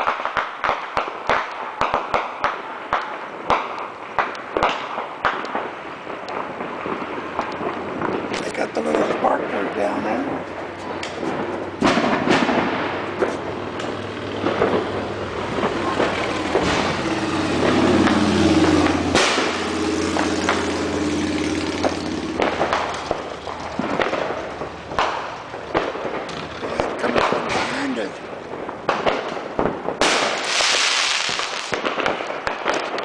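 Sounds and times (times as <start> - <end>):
fireworks bangs and pops: 0.0 - 33.0
low hum: 13.0 - 27.0
sliding pitch sound: 14.2 - 27.3.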